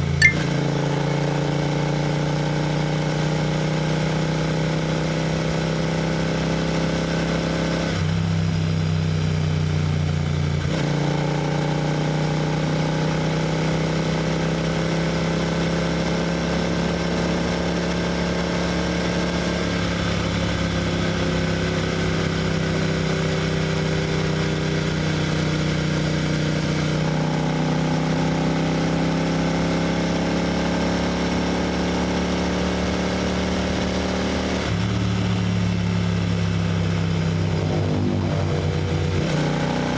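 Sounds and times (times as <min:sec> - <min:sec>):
motorcycle engine cruising: 0:15.2 - 0:39.9.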